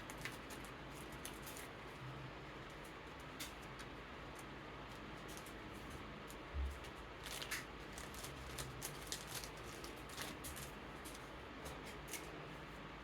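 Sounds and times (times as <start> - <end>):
electric fan hiss: 0.0 - 13.0
plastic sleeve rustles and clicks: 6.8 - 12.3.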